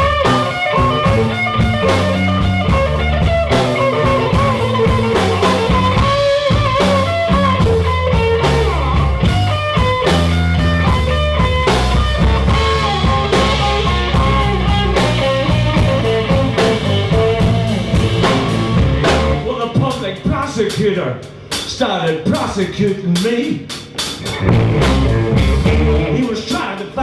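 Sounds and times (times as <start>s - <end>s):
electric guitar lines: 0.0s - 19.9s, 24.1s - 26.7s
blues band playing: 0.0s - 21.8s, 22.4s - 27.0s.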